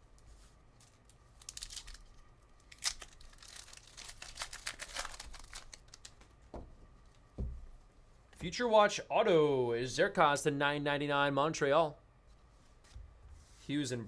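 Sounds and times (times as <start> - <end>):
foil pack tearing and crinkling: 1.0 - 6.3.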